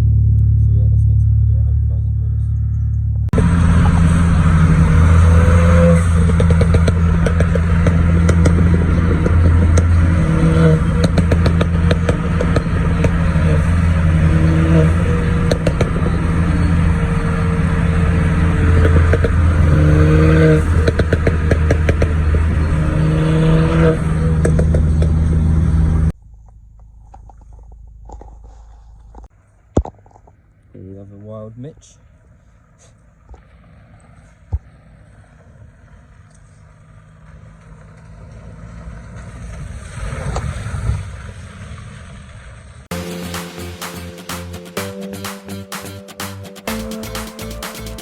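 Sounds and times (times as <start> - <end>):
shifting whine: 0.0 - 30.7, 32.0 - 48.0
car engine and exhaust drone: 0.0 - 48.0.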